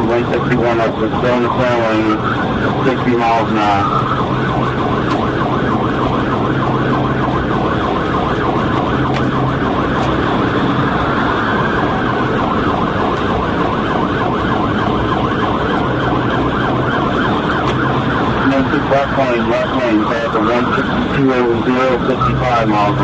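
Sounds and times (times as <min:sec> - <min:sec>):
car engine and road noise: 0:00.0 - 0:23.0
police siren wailing: 0:00.0 - 0:23.0
police siren yelping: 0:00.0 - 0:23.0.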